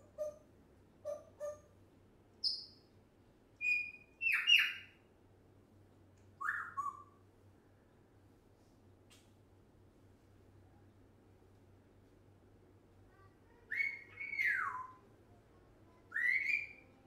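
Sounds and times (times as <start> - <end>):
parrot squawking: 1.0 - 1.7, 13.7 - 14.9.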